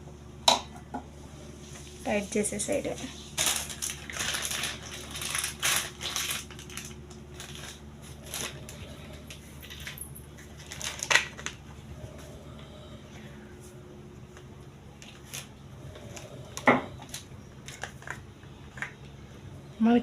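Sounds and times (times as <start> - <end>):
plastic parts crackling and clicking: 3.4 - 11.6, 16.1 - 18.9.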